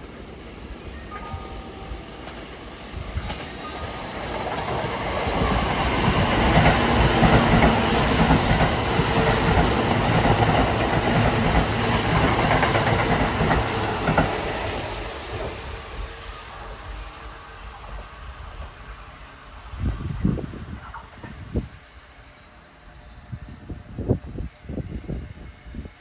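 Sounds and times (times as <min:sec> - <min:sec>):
electric train passing: 0:00.0 - 0:26.0
wheels clacking over rail joints: 0:02.2 - 0:14.8.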